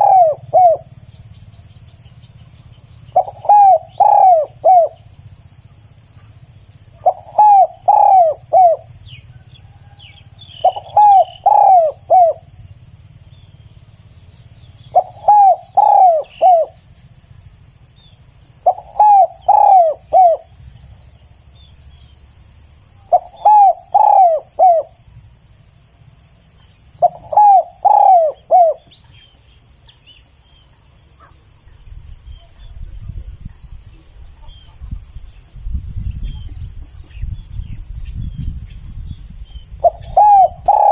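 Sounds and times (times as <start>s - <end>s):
dove cooing: 0.0s - 1.0s, 3.1s - 5.0s, 6.9s - 12.5s, 14.9s - 16.8s, 18.6s - 20.6s, 23.0s - 25.0s, 27.0s - 29.0s, 39.7s - 40.9s
insects trilling: 0.0s - 40.9s.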